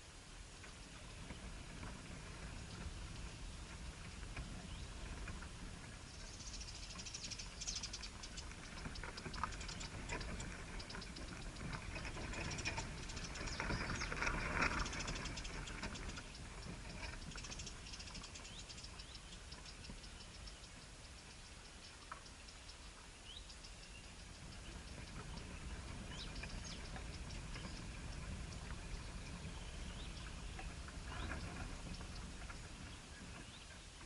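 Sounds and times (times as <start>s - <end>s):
birds scratching and rustling: 7.9s - 18.2s.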